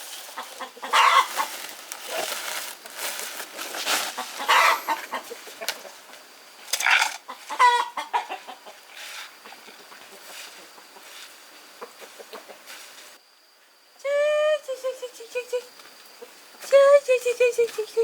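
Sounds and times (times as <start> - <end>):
chickens clucking: 0.2 - 2.2, 4.0 - 12.9.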